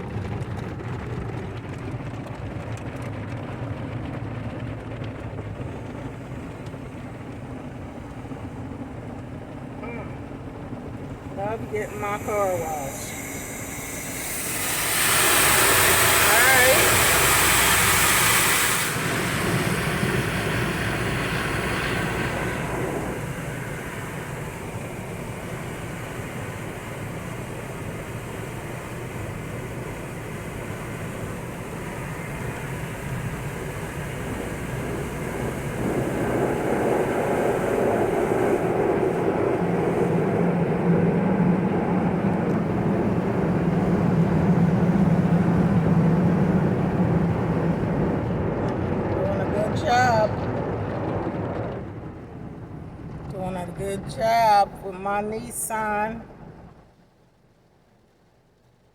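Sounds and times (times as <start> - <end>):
steady low hum: 0.0 - 58.2
car wash machinery rumble: 0.0 - 58.9
spraying water hiss: 11.4 - 48.0.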